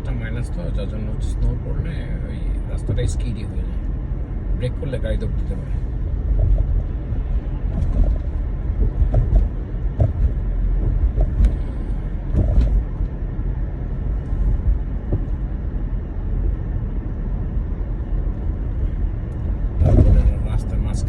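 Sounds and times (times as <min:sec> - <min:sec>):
tyres and engine rumble: 0:00.0 - 0:21.0
small knocks: 0:07.7 - 0:11.6.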